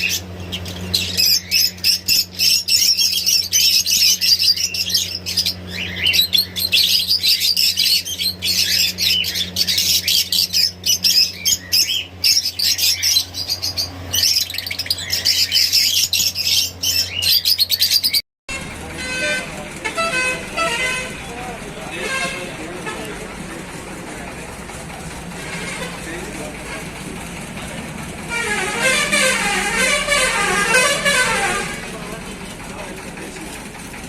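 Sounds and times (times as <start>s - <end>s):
parrots chirping and squawking: 0.0s - 19.4s
steady low hum: 0.0s - 34.0s.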